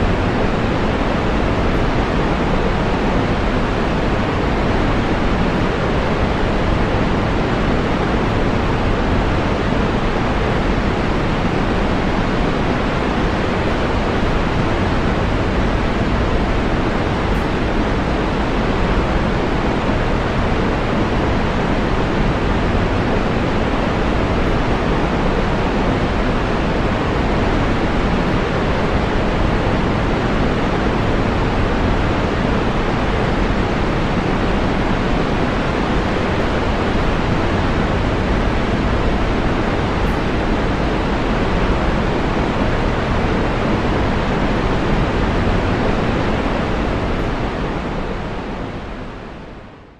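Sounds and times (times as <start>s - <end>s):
waterfall roaring: 0.0s - 49.6s.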